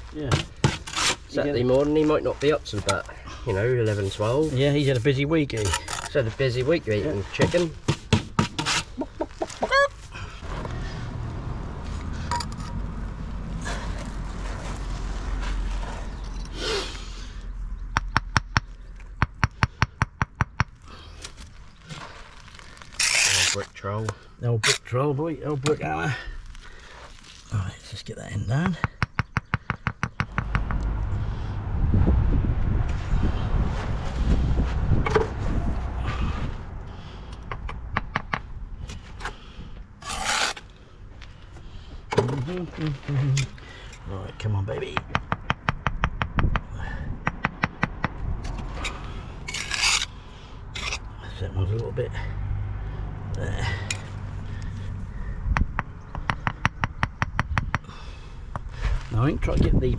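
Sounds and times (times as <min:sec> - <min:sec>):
mortar being scraped: 0:00.1 - 0:02.1, 0:03.8 - 0:09.7, 0:21.9 - 0:24.9, 0:40.0 - 0:40.8, 0:48.5 - 0:51.8
sharp taps on brick: 0:07.4 - 0:08.8, 0:28.6 - 0:30.6, 0:55.6 - 0:57.9
trowel tapping on brick: 0:07.4 - 0:08.8
short scrape: 0:23.0 - 0:23.7, 0:40.0 - 0:40.7, 0:48.5 - 0:50.2, 0:50.8 - 0:51.1.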